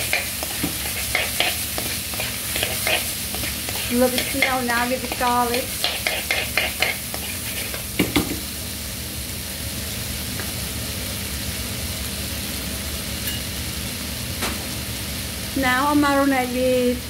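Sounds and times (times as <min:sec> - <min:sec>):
spatula scraping pan: 0:00.0 - 0:08.2
food sizzling in a wok: 0:00.0 - 0:17.0.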